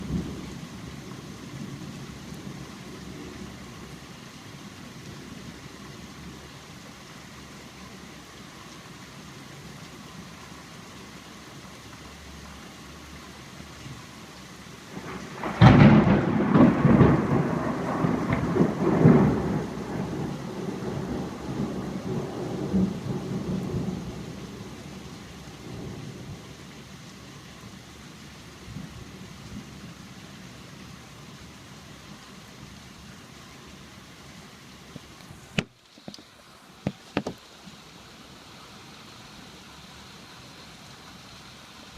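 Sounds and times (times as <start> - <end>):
steady rain falling: 0.0 - 41.9
thunder clap rumbling: 14.9 - 25.0.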